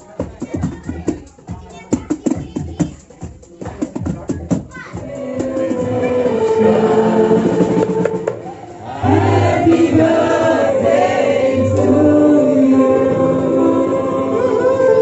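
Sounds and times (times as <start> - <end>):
choir singing with music: 4.9 - 15.0.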